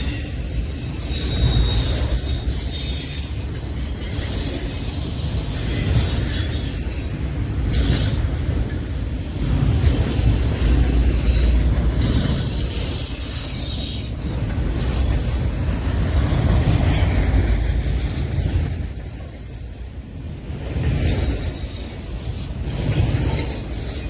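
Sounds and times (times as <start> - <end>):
high-pitched wheel squeal: 0.0 - 6.9
train wheels rumbling on rails: 0.0 - 24.0.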